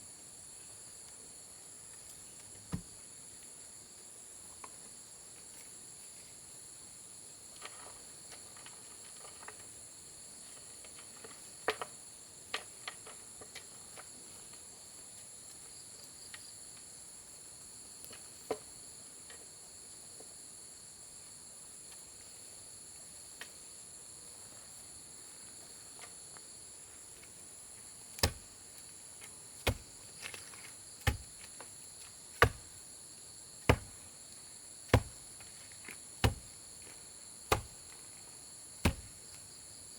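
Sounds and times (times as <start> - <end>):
insects calling: 15.6 - 39.9.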